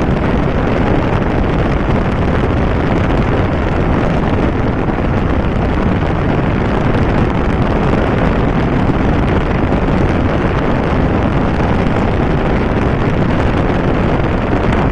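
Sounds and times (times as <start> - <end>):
wind roar buffeting microphone: 0.0 - 14.9.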